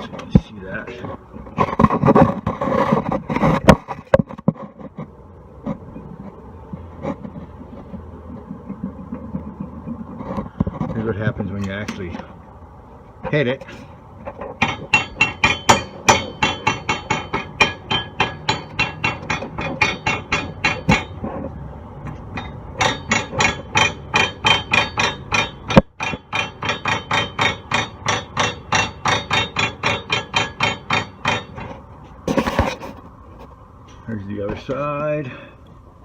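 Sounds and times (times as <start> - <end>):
metallic knocking on sway bar link: 14.3 - 21.2, 22.1 - 31.8.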